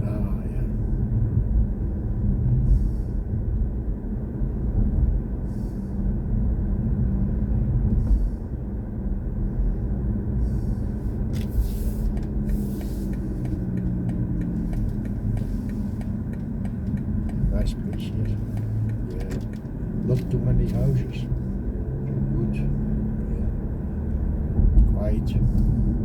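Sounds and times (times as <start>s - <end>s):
road and tyre rumble: 0.0s - 26.0s
light ticks: 11.3s - 20.8s.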